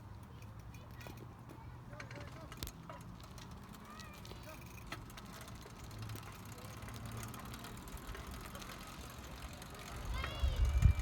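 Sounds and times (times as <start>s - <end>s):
tyres rolling: 1.9s - 11.0s
wind on microphone: 10.4s - 11.0s.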